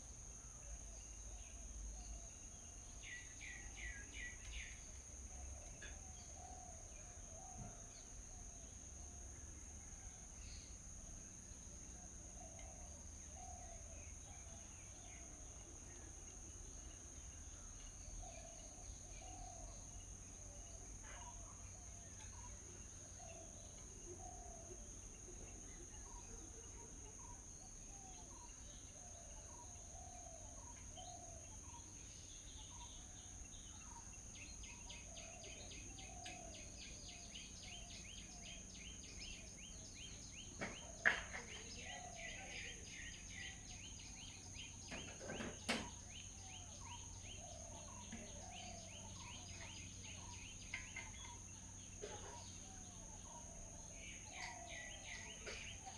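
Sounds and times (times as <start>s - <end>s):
birds chirping: 12.3s - 55.9s.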